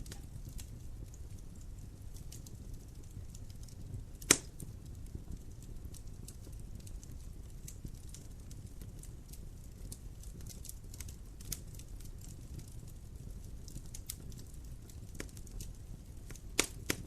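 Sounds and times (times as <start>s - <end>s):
wood fire crackling: 0.0s - 17.0s
fire popping loudly: 3.8s - 4.8s, 13.9s - 17.0s.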